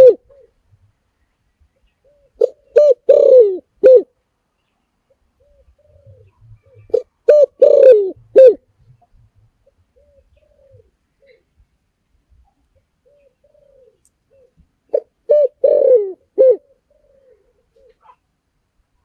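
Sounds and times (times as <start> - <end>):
fainter coos of another dove: 0.0 - 0.6, 2.0 - 4.1, 5.4 - 11.5, 13.0 - 18.2
dove cooing: 0.0 - 0.7, 2.0 - 4.1, 5.3 - 11.5, 13.0 - 18.2.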